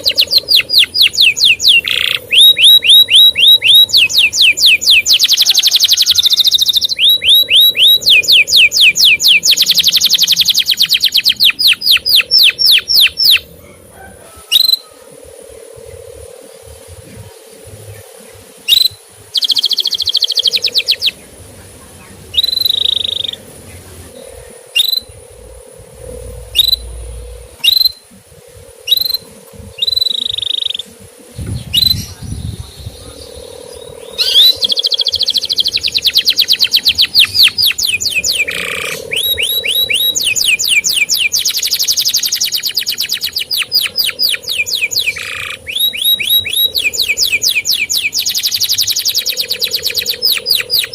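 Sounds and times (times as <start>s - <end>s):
canary singing: 0.0s - 50.9s
faint steady high tone: 0.0s - 50.9s
low hum: 6.2s - 42.2s.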